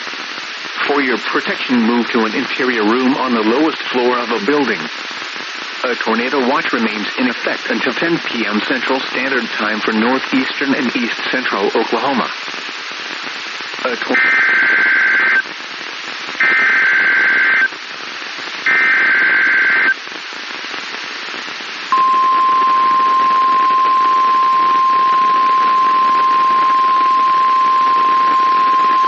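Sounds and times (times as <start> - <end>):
radio static hiss: 0.0 - 29.0
digital data tone bursts: 21.9 - 29.0
steady alarm tone: 21.9 - 29.0.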